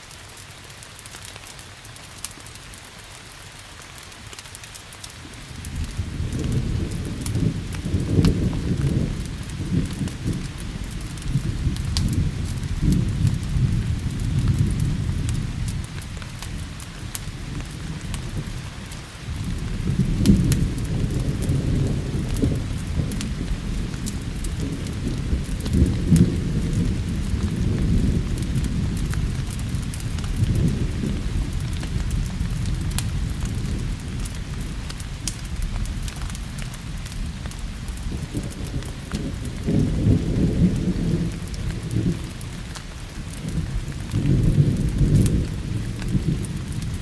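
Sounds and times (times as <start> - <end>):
steady rain: 0.0 - 47.0
rolling thunder: 5.5 - 47.0.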